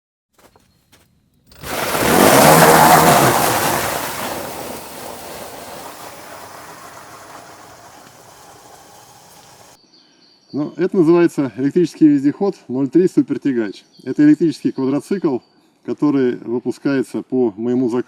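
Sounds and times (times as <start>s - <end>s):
vehicle passing by: 1.6s - 9.8s.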